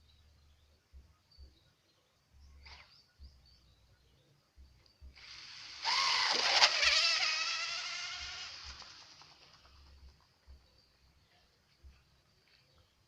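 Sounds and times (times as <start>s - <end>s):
model boat motor whining: 5.3s - 9.2s.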